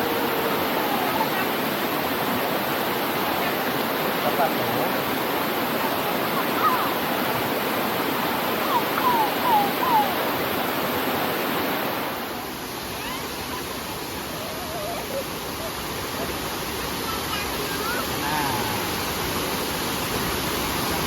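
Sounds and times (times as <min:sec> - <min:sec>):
waterfall rushing: 0:00.0 - 0:21.0
distant voices calling out: 0:17.4 - 0:19.1.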